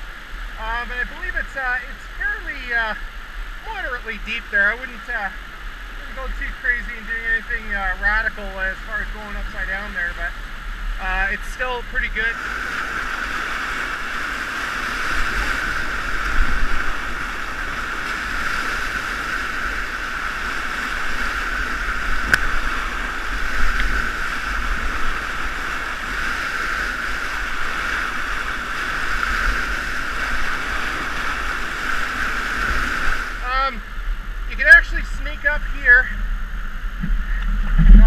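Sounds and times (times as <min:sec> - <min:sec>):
whitewater rushing: 0:00.0 - 0:36.2
low rumble: 0:29.8 - 0:38.0.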